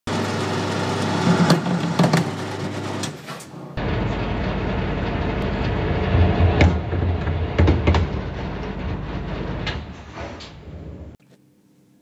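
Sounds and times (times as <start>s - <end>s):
metal lathe running: 3.8s - 6.6s.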